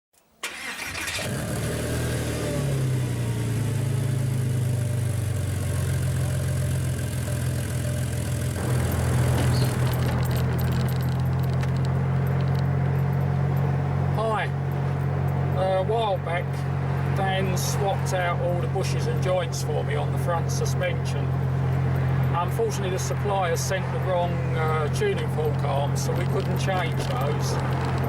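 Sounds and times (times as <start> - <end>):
car engine idling: 0.5 - 28.0
light rattling clicks: 8.6 - 13.7, 24.6 - 28.0.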